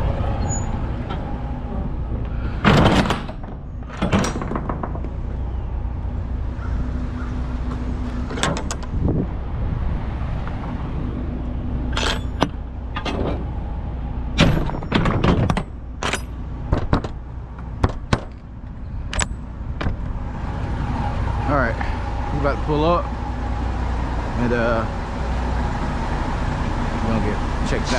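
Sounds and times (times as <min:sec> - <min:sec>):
truck idling: 0:00.0 - 0:27.9
sharp metallic clanks: 0:11.9 - 0:13.5, 0:14.4 - 0:18.4.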